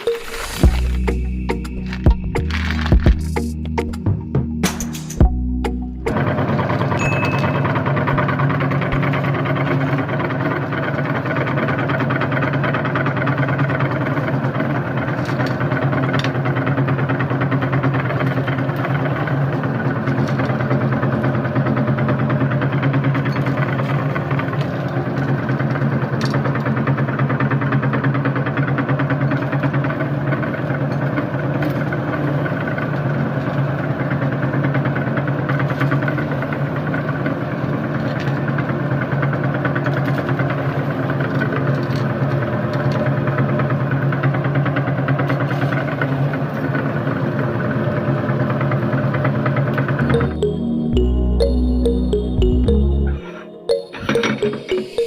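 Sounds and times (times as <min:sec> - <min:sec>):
sharp cracks of crushing: 0:01.8 - 0:03.4.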